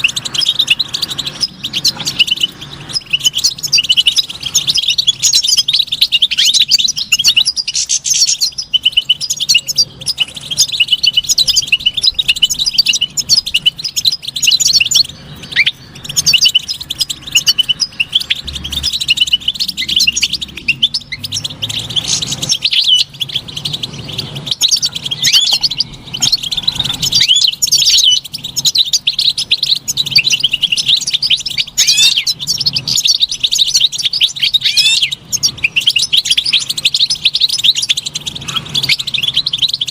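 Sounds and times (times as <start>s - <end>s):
finch singing: 0.0s - 39.9s.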